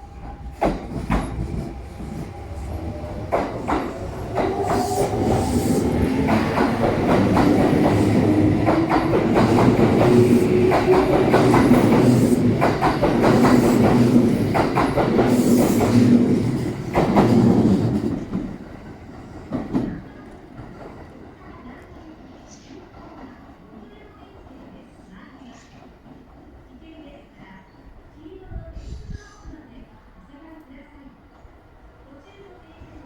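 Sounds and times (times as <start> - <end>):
train low hum: 0.0 - 33.0
train wheels clacking on rails: 0.1 - 22.1.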